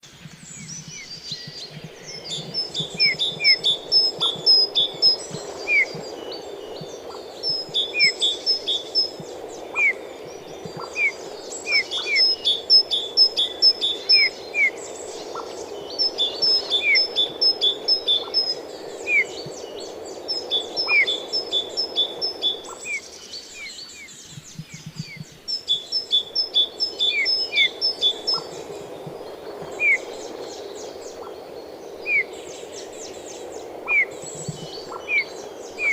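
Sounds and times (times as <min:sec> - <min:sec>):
low background noise: 0:00.0 - 0:35.9.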